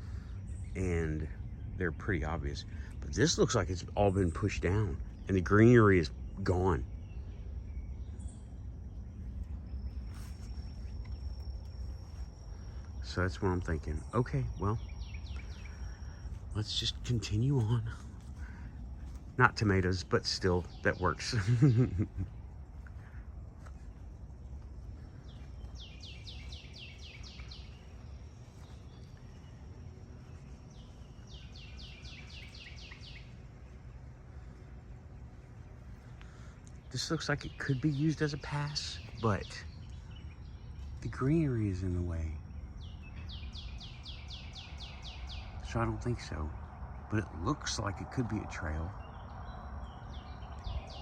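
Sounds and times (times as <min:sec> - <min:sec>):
high bird chirp: 0:00.0 - 0:51.0
high insect tone: 0:00.0 - 0:51.0
steady low rumble: 0:00.0 - 0:51.0
songbird whistling: 0:30.3 - 0:33.4.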